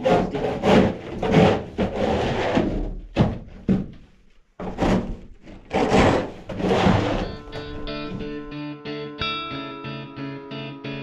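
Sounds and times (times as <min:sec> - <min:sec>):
scraping on wooden boards: 0:00.0 - 0:08.5
sharp knocks: 0:00.1 - 0:08.5.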